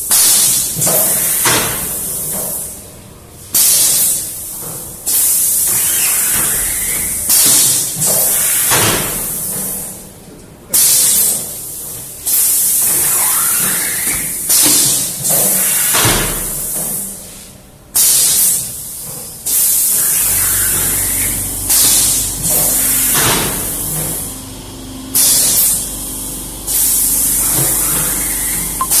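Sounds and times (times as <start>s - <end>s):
printing machine running: 3.9s - 10.2s, 19.5s - 29.0s.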